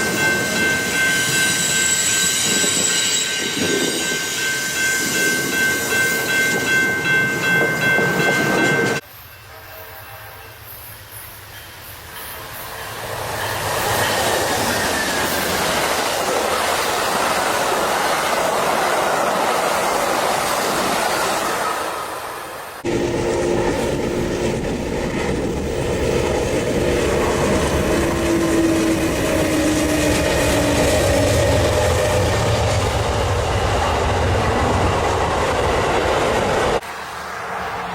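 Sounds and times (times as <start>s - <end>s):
high-pitched wheel squeal: 0.0s - 6.0s, 10.0s - 15.8s
train rumbling on rails: 0.0s - 37.9s.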